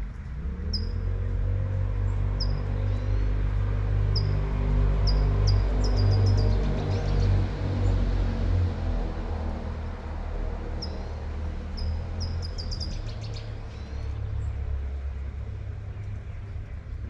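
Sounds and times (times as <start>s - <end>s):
bird chirping: 5.0s - 7.3s, 10.8s - 11.1s, 11.8s - 14.5s.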